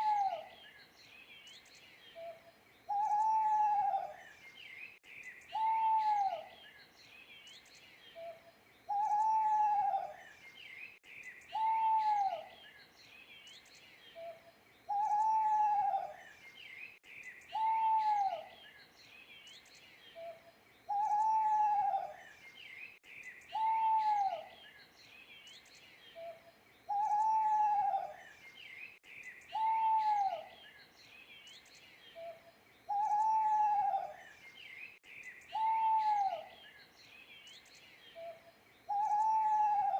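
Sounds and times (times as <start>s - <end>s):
owl hooting: 0.0s - 0.5s, 2.2s - 4.2s, 5.5s - 6.5s, 8.2s - 10.2s, 11.5s - 12.5s, 14.2s - 16.2s, 17.5s - 18.5s, 20.2s - 22.2s, 23.5s - 24.5s, 26.2s - 28.2s, 29.5s - 30.6s, 32.2s - 34.2s, 35.5s - 36.6s, 38.2s - 39.9s
small birds chirping: 0.0s - 39.9s.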